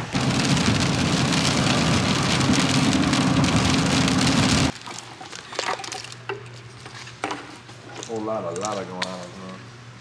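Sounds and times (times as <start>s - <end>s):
road and engine noise: 0.0s - 4.8s
heavy rain on windshield: 0.1s - 4.8s.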